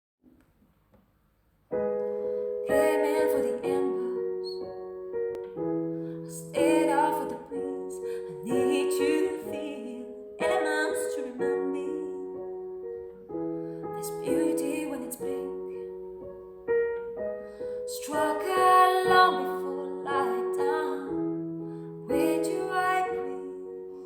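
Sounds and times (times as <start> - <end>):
piano chords: 1.6 - 24.0
person singing: 2.7 - 4.6, 6.3 - 12.3, 17.9 - 21.2.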